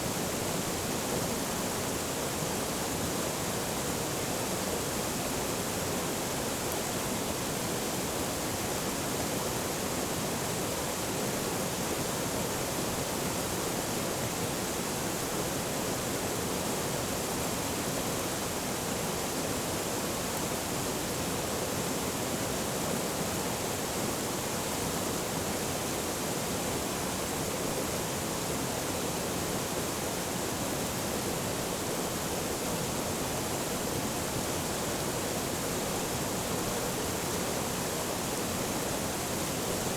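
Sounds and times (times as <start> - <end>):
stream flowing: 26.9 - 39.9.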